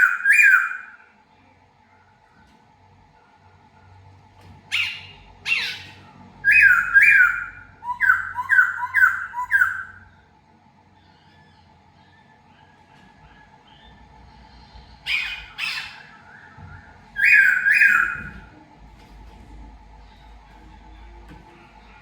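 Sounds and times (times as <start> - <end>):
bird giving harsh calls: 0.0 - 1.0, 4.7 - 10.1, 15.0 - 18.4.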